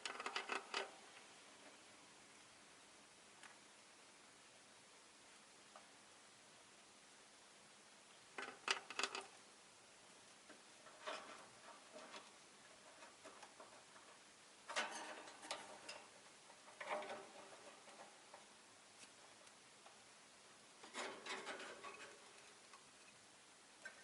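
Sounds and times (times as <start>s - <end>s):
bird scratching and clicking: 0.0s - 1.0s, 8.4s - 9.4s, 10.8s - 19.6s, 20.8s - 23.2s.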